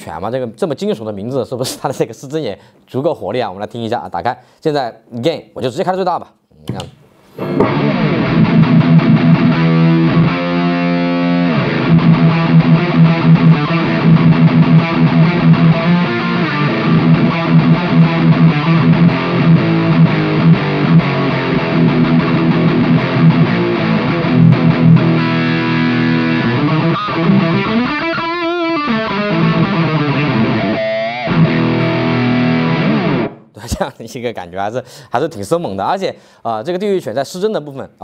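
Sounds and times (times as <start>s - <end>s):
distorted electric guitar: 7.3s - 33.5s.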